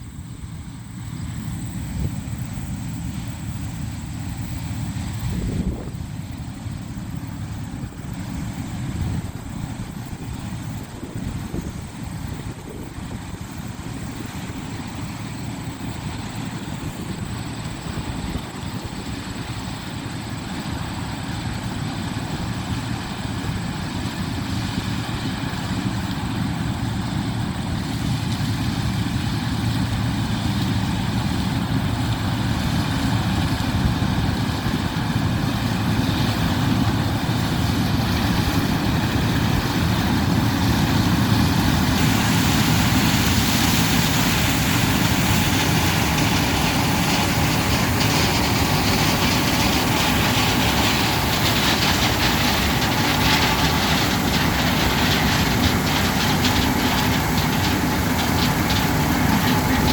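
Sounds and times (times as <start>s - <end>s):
farm machinery engine running: 0.0s - 59.9s.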